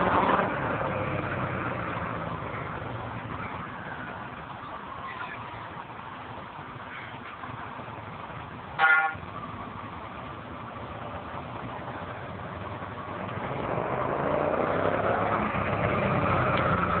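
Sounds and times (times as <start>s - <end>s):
motorcycle engine revving: 12.4s - 17.0s.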